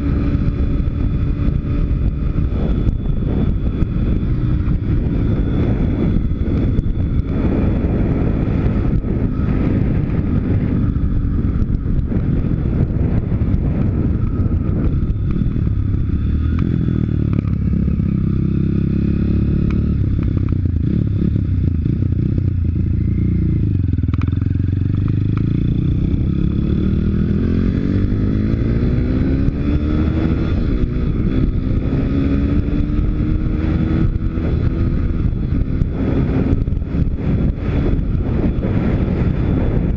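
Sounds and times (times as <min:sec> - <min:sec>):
motorbike engine running: 0:00.0 - 0:39.9.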